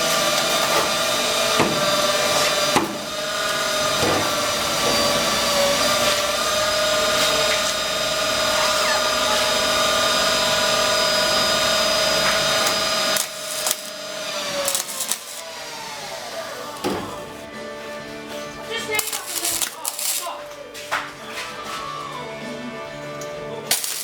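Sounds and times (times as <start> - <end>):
power tool running high-pitched: 0.0 - 17.4, 18.9 - 20.4, 23.7 - 24.0.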